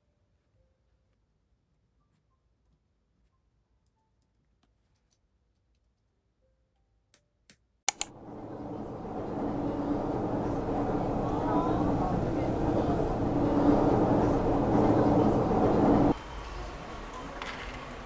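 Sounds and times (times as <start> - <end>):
keyboard key clicks: 7.9 - 8.1
low background rumble: 8.1 - 16.2.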